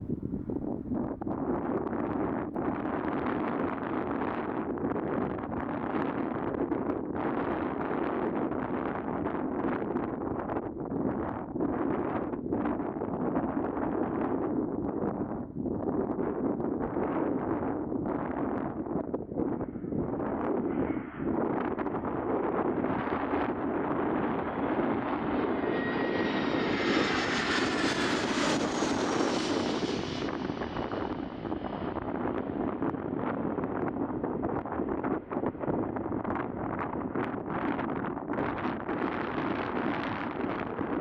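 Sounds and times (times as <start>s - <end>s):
wind buffeting microphone: 0.0s - 41.0s
thin whine: 19.8s - 37.2s
jet engines passing: 19.8s - 37.7s.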